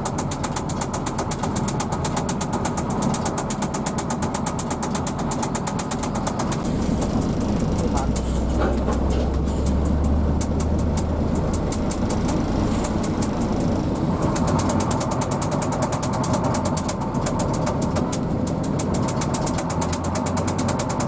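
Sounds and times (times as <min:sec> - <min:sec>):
diesel bus engine humming: 0:00.0 - 0:21.0.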